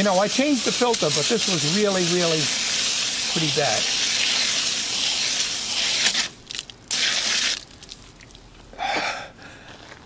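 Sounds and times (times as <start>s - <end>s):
hose spraying water on metal fins: 0.0s - 7.6s.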